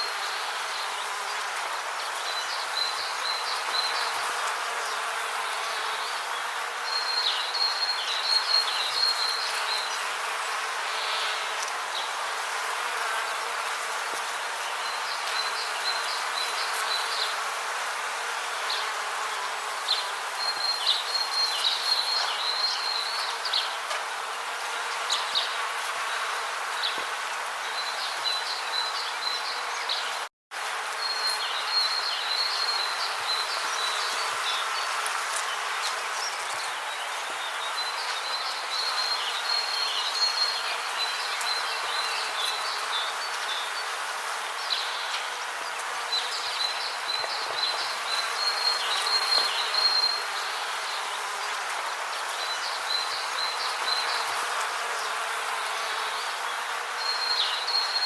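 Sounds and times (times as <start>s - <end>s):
dense rainforest hiss: 26.8s - 58.0s.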